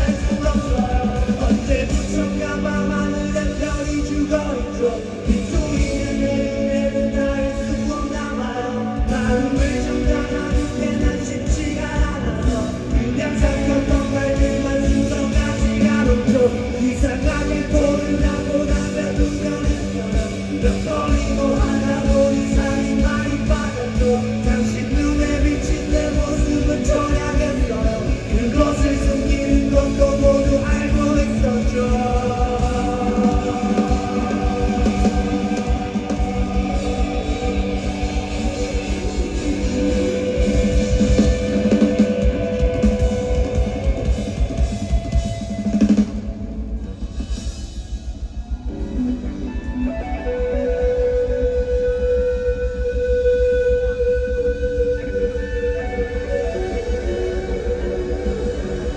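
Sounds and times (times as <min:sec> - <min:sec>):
sustained guitar chords: 0:00.0 - 0:47.0
live rock band playing: 0:00.0 - 0:58.9
drum beat: 0:09.1 - 0:46.4.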